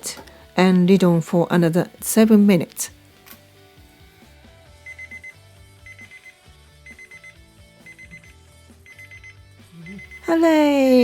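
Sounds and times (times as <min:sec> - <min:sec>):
soft background music: 0:00.0 - 0:11.0
kitchen timer beeping: 0:04.8 - 0:09.4.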